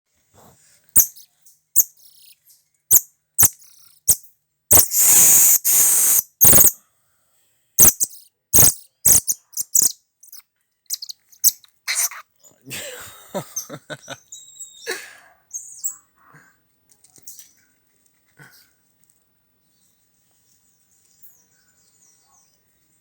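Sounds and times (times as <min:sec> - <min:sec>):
high-pitched animal chirps: 0:01.0 - 0:06.8, 0:07.8 - 0:12.2.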